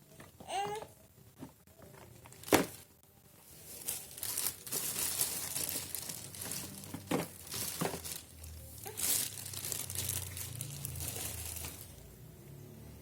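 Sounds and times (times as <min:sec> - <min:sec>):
plastic packaging crinkling: 0:03.5 - 0:12.1.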